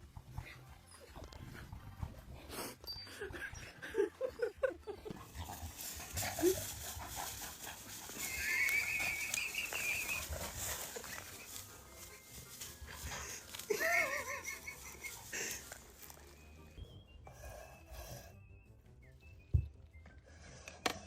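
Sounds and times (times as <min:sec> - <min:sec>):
animal calling: 0:08.0 - 0:15.6.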